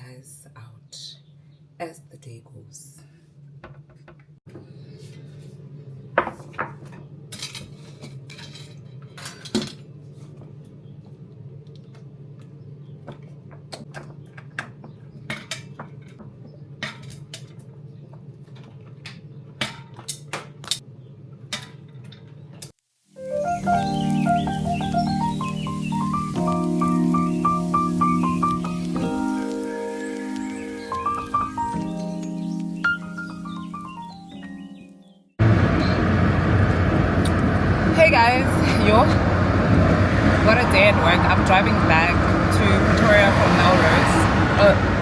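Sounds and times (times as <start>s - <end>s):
steady low hum: 35.4s - 45.0s.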